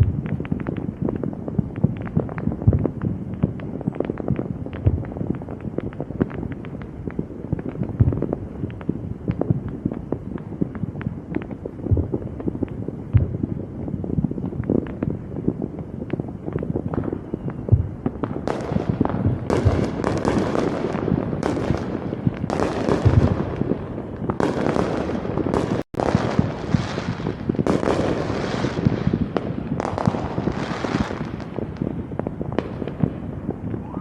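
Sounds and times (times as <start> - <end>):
fireworks popping and crackling: 0.0 - 34.0.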